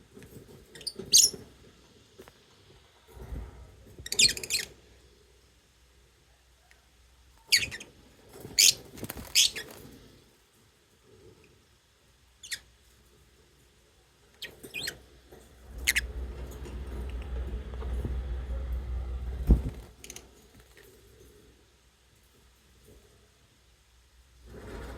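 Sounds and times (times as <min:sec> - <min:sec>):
low rumble: 0:15.5 - 0:20.0.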